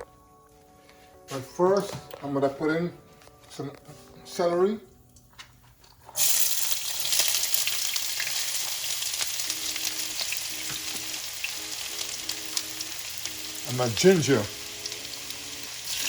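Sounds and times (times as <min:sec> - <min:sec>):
celery sizzling in hot oil: 0:06.2 - 0:16.0.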